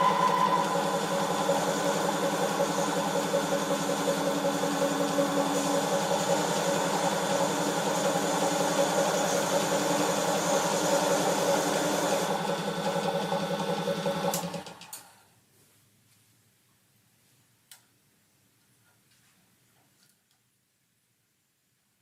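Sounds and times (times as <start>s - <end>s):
motor running: 0.0s - 14.6s.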